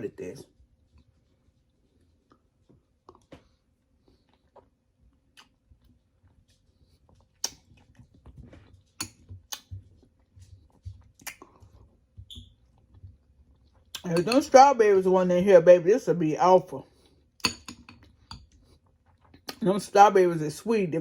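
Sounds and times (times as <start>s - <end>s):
chewing berries crunching: 2.2s - 12.0s.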